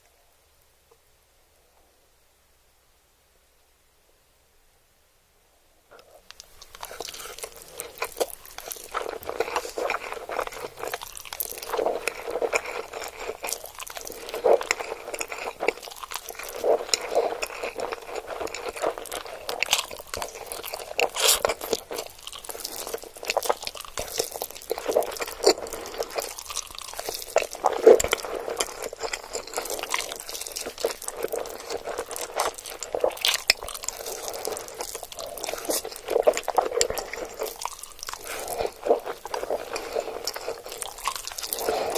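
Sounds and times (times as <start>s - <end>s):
chewing and crunching: 5.9s - 41.9s
wet mouth sounds: 6.0s - 41.9s.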